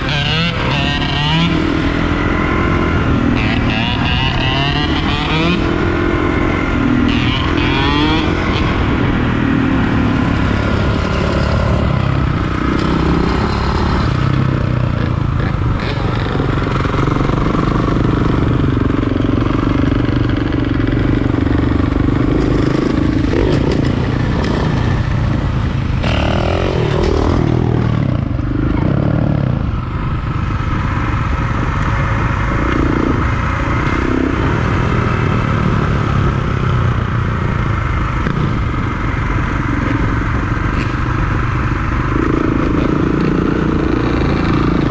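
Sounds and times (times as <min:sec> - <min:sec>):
motorcycle engines revving: 0:00.0 - 0:44.9.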